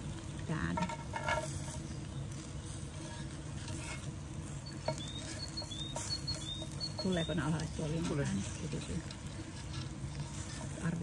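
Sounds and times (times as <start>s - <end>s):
low background noise: 0.0s - 11.0s
bird chirping high notes: 4.6s - 7.5s.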